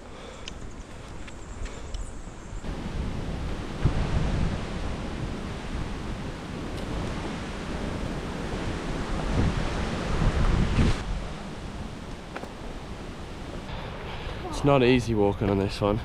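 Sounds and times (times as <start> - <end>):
wind buffeting microphone: 2.6 - 13.7.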